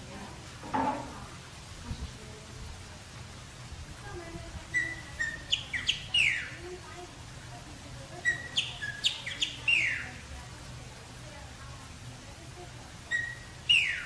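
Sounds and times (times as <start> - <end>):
songbird whistling phrases: 4.7 - 6.6, 8.2 - 10.2, 13.1 - 14.0.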